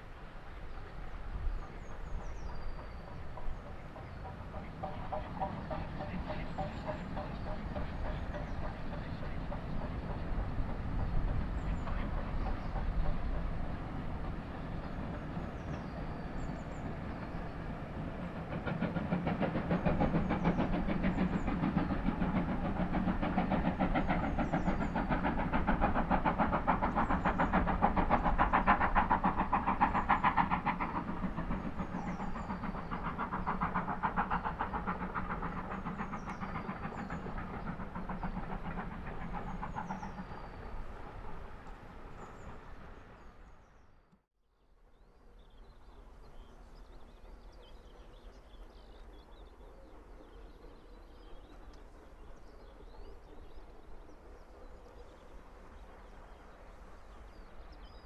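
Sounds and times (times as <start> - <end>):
clatter of train wheels: 0.0 - 43.6
train rumble on bridge: 0.0 - 44.0, 45.4 - 58.0
birds chirping: 0.6 - 43.9.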